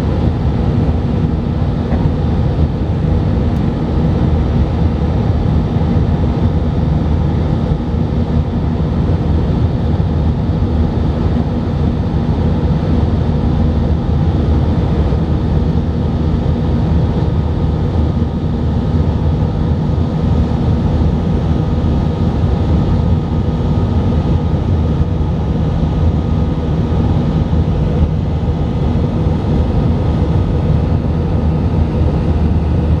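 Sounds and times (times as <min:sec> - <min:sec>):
jet engine cabin rumble: 0:00.0 - 0:33.0.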